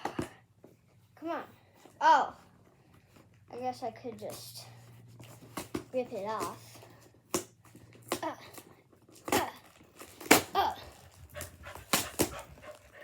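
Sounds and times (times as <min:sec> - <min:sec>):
packing tape ripping off box: 0:05.2 - 0:12.4.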